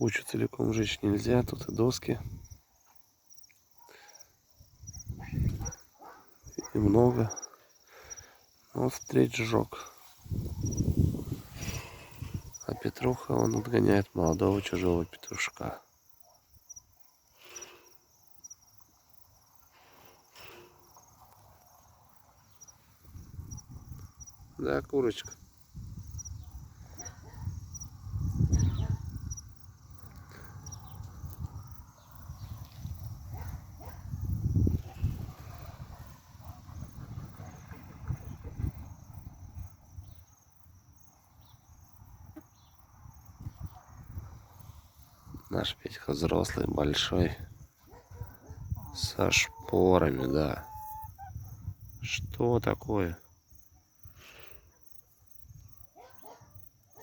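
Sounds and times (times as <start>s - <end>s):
faint cricket chirping: 0.0s - 57.0s.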